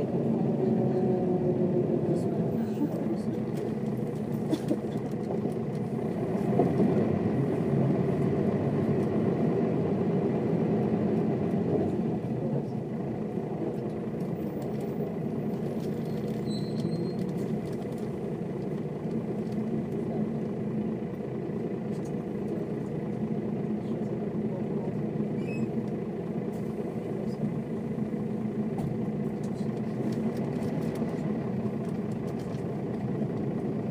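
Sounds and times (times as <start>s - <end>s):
bus diesel engine running: 0.0s - 33.9s.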